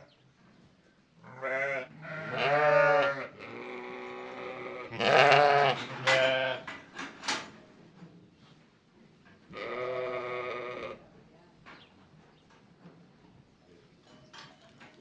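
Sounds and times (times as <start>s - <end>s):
farm animal bleating: 1.2s - 6.7s, 9.5s - 11.0s.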